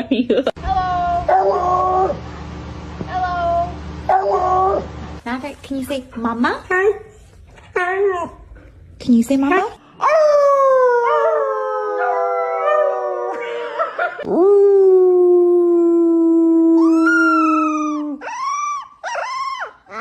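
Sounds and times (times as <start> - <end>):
dog howling: 1.0 - 2.2, 4.1 - 4.9, 10.0 - 13.4, 14.3 - 20.0.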